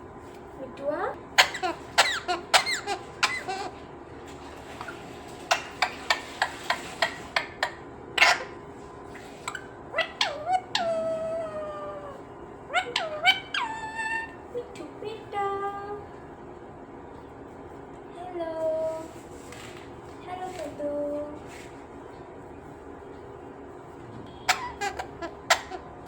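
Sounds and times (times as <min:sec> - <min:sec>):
parrot squeaky calls: 0:01.3 - 0:03.8, 0:04.8 - 0:14.5, 0:24.4 - 0:26.0
parrot squawk: 0:01.4 - 0:03.9, 0:04.8 - 0:08.6, 0:09.3 - 0:14.4, 0:24.4 - 0:26.0.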